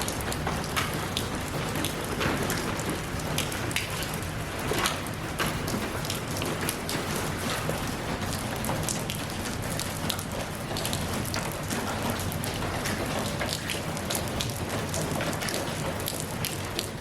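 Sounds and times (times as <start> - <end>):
drops ticking on a surface: 0.0 - 17.0
rain falling: 0.0 - 17.0.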